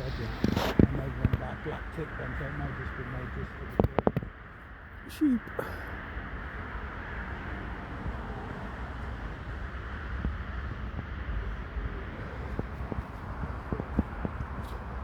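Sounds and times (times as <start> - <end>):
wind noise on microphone: 0.0 - 2.3, 3.6 - 4.5, 6.3 - 15.0.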